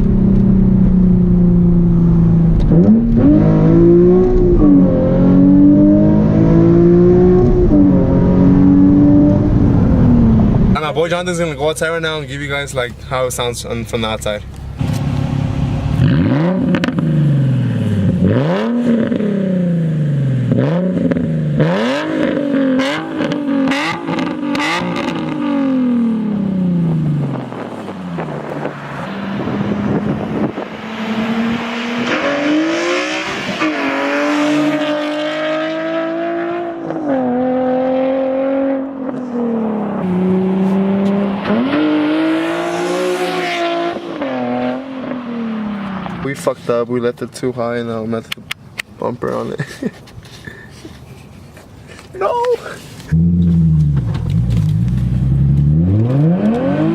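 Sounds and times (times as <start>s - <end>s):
car engine revving: 0.0s - 12.0s, 13.8s - 46.7s, 53.1s - 56.9s.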